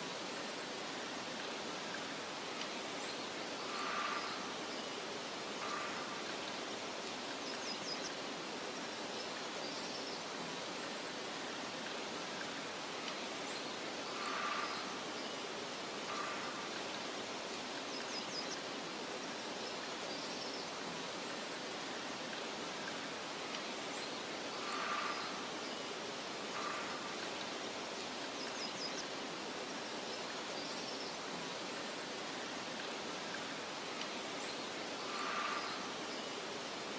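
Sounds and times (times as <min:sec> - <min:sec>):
soft rushing nature ambience: 0:00.0 - 0:36.9
faint bird chirps: 0:33.3 - 0:36.4.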